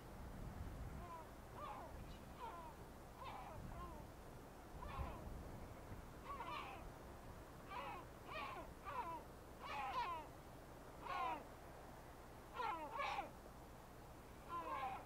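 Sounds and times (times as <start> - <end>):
birds making rough calls: 1.0 - 4.1, 4.8 - 5.2, 6.2 - 6.9, 7.6 - 10.3, 11.0 - 11.5, 12.5 - 13.4, 14.4 - 15.0.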